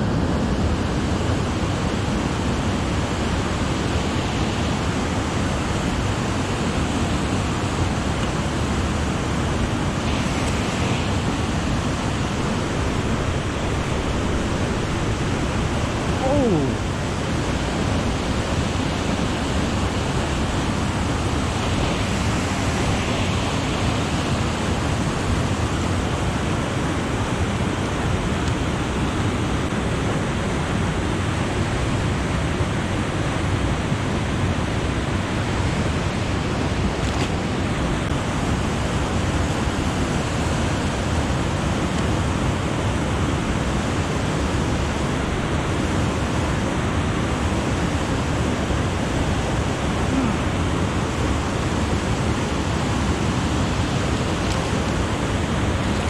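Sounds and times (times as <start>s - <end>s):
low rushing noise: 8.4s - 26.0s.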